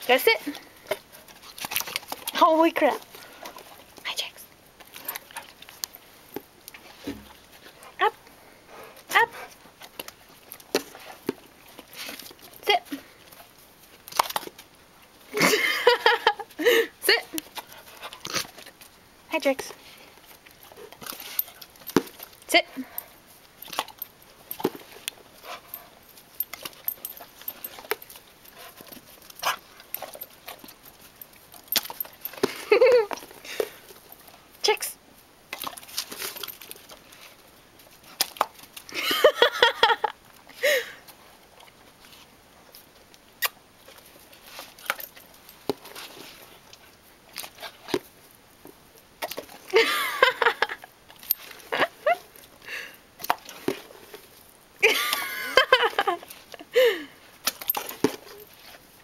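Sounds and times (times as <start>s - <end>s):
puppies chewing and gulping: 0.0s - 34.6s, 35.2s - 59.0s
puppies chomping and gulping: 0.4s - 4.0s.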